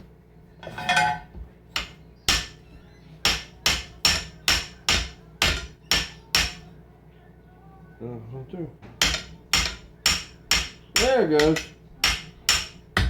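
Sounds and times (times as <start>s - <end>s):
hammer striking metal: 1.8s - 2.6s, 3.2s - 6.6s, 9.0s - 13.0s.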